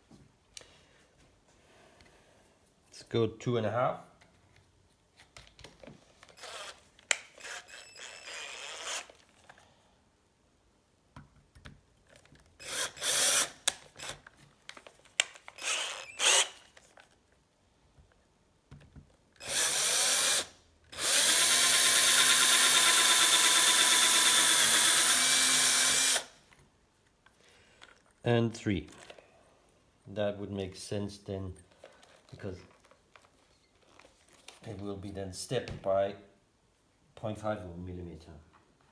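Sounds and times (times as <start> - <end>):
electric drill boring metal: 12.6 - 14.2, 15.6 - 16.6, 19.4 - 26.3.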